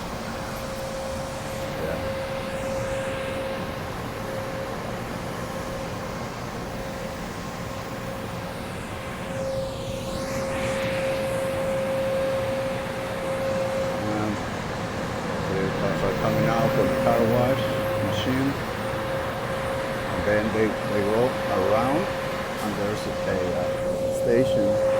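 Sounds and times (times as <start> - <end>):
traffic hum: 13.9 - 24.9.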